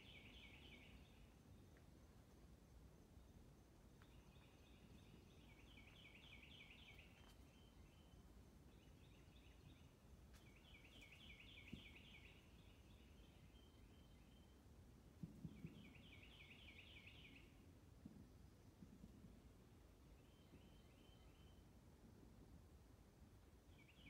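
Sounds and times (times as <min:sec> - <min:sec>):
faint bird song: 0:00.0 - 0:24.0.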